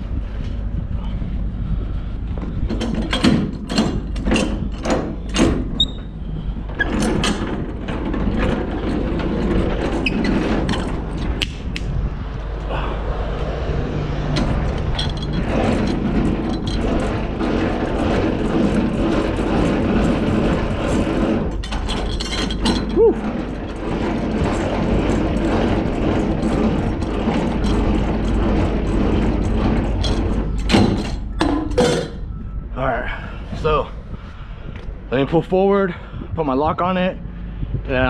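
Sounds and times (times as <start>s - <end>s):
diesel truck engine running: 10.6s - 22.0s
mechanical clicks and clunks: 14.1s - 32.6s.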